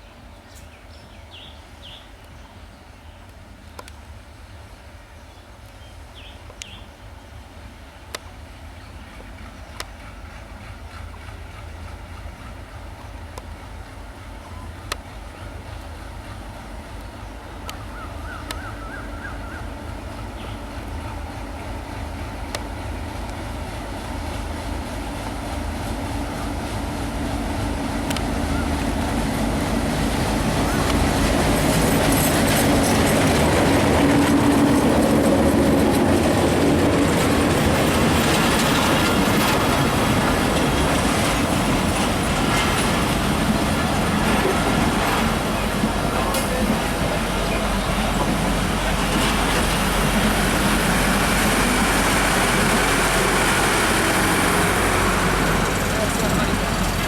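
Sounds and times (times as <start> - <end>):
train rumbling past: 0.0 - 57.0
rattle of train wheels: 7.3 - 57.0.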